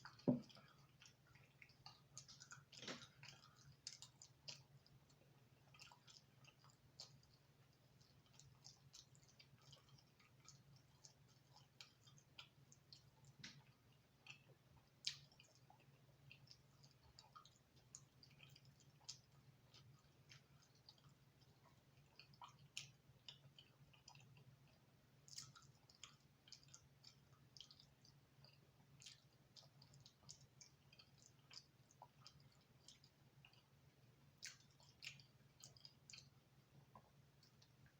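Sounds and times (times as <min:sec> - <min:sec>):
chewing crispy pizza: 0:00.0 - 0:37.9.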